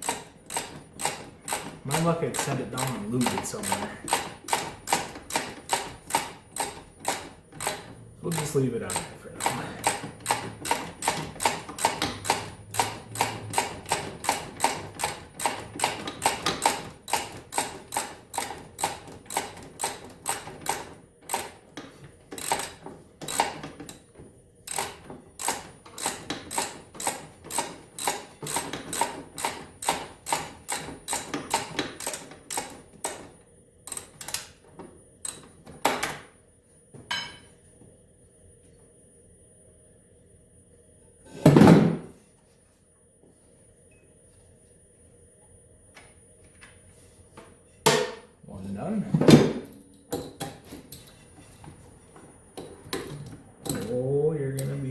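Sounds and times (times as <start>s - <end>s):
hand ratchet clicking: 0.0s - 21.6s, 22.4s - 24.0s, 24.7s - 33.2s.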